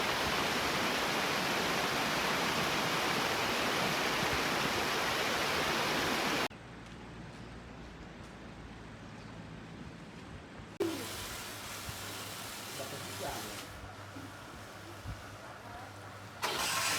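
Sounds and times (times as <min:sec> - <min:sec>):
loud steady rushing hiss: 0:00.0 - 0:06.5, 0:10.8 - 0:16.9.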